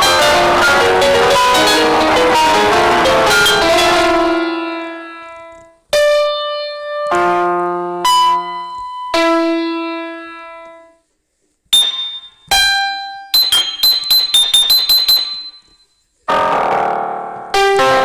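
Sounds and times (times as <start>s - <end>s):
piano-like keyboard notes: 0.0s - 11.0s, 16.3s - 18.0s.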